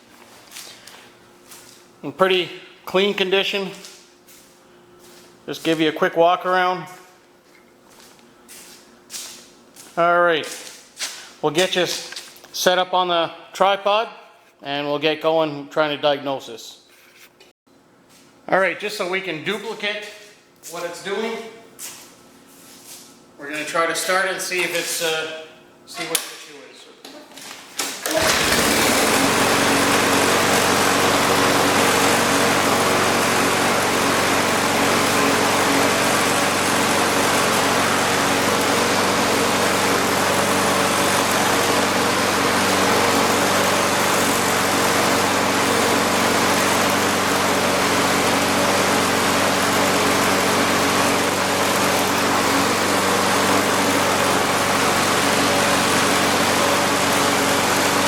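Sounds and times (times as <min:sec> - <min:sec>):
lawn mower engine running: 0:28.0 - 0:58.0.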